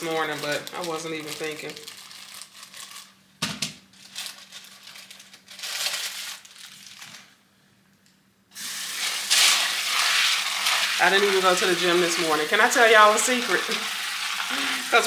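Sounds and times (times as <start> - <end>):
plastic bag crinkling and tearing: 0.0 - 7.4.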